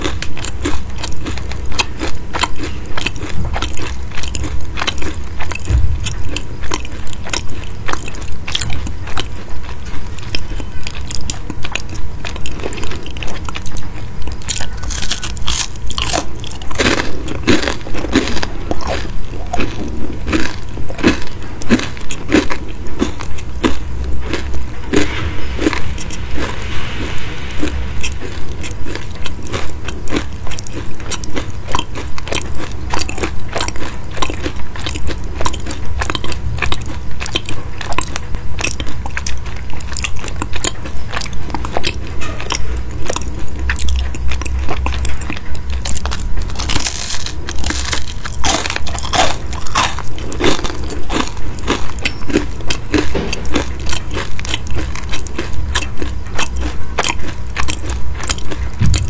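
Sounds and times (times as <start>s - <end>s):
crisp pastry crunching: 0.0s - 25.6s, 28.6s - 59.0s.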